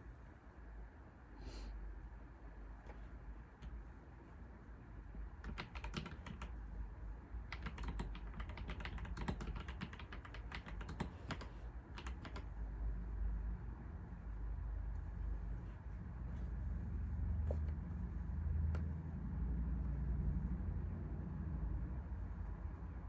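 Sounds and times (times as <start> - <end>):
steady low hum: 0.0 - 23.0
computer keyboard typing: 5.4 - 6.6, 7.5 - 12.6.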